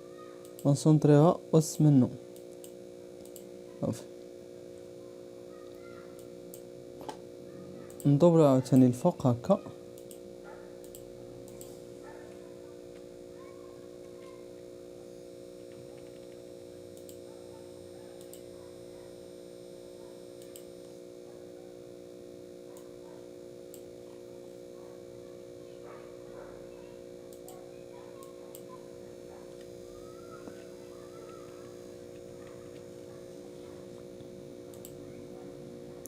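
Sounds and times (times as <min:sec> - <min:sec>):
low electrical hum: 0:00.0 - 0:36.0
computer mouse clicks: 0:00.4 - 0:00.7, 0:01.8 - 0:03.5, 0:10.0 - 0:10.2, 0:10.8 - 0:12.4, 0:17.0 - 0:17.2, 0:18.2 - 0:18.5, 0:20.4 - 0:20.7, 0:27.3 - 0:27.6, 0:28.2 - 0:28.7, 0:34.7 - 0:35.0.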